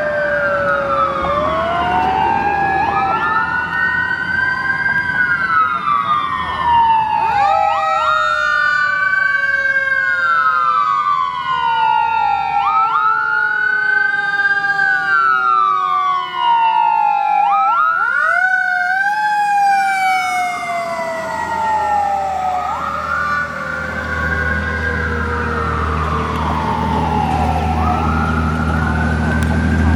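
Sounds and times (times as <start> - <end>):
second siren tone falling: 0.0 - 4.3, 17.5 - 29.9
fast siren warbling: 0.0 - 29.9
fire truck siren wailing: 0.0 - 29.9.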